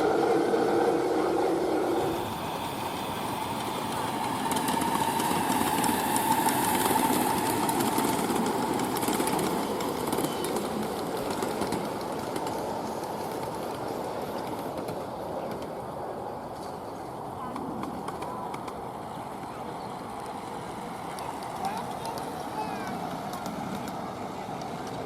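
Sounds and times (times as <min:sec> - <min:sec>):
model train humming on track: 0:00.0 - 0:25.0.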